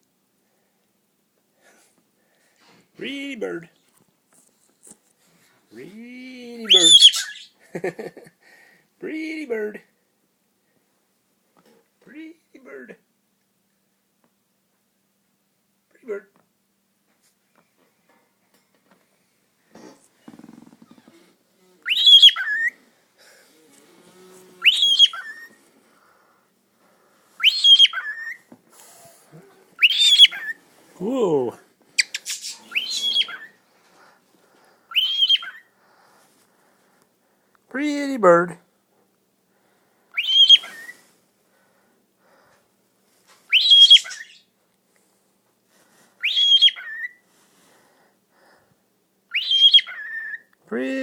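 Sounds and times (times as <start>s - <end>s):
pet bird whistling: 6.7s - 7.5s, 21.8s - 22.8s, 24.6s - 25.6s, 27.4s - 28.4s, 29.8s - 30.6s, 32.0s - 33.6s, 34.9s - 35.7s, 40.2s - 40.9s, 43.5s - 44.4s, 46.2s - 47.2s, 49.3s - 50.5s.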